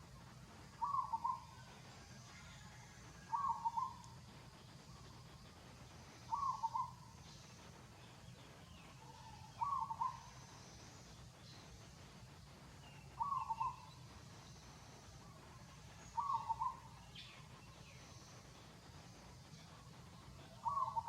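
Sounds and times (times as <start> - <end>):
low background rumble: 0.0 - 21.0
bird calling: 0.8 - 4.1, 6.1 - 11.6, 12.8 - 18.7, 19.7 - 21.0.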